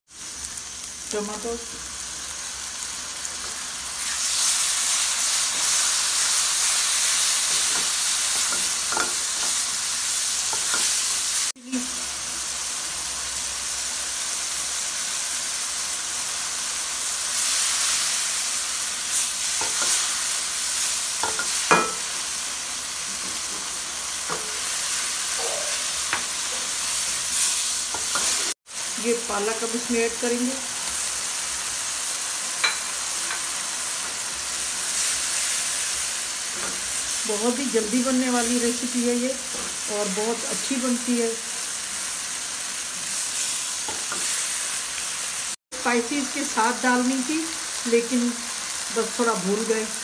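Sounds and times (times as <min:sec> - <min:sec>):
paste sizzling in hot oil: 0:00.1 - 0:50.0
spatula stirring in a wok: 0:05.2 - 0:11.4, 0:19.1 - 0:22.2, 0:25.8 - 0:28.5.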